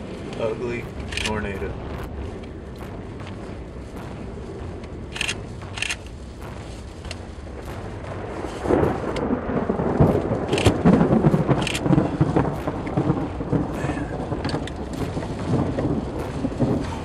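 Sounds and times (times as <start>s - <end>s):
rain: 0.0s - 17.0s
thunder rumbling: 0.0s - 17.0s
sharp ticks: 0.3s - 13.3s.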